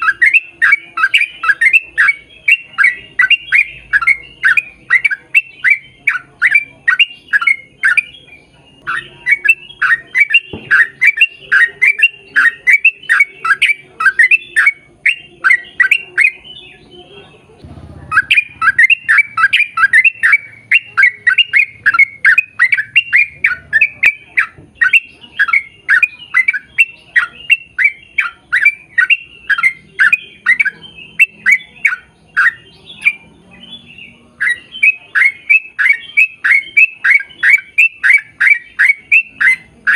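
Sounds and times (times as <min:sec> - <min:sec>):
bird squawking loudly: 0:18.0 - 0:32.7.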